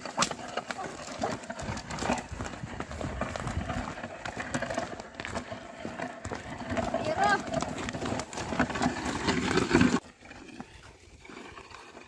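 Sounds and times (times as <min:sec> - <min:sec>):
footsteps on soil: 0:00.0 - 0:11.0
scuffing on soil: 0:00.0 - 0:11.0.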